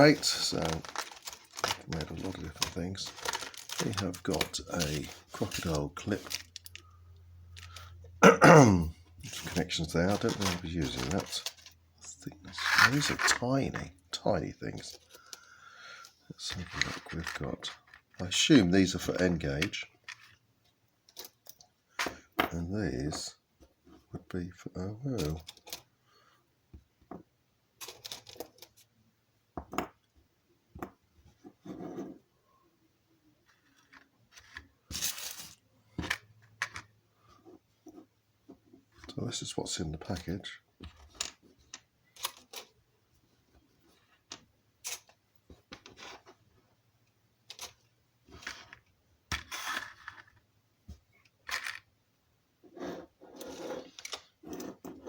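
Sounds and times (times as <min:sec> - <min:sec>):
small hard parts clinking: 0:00.0 - 0:08.0.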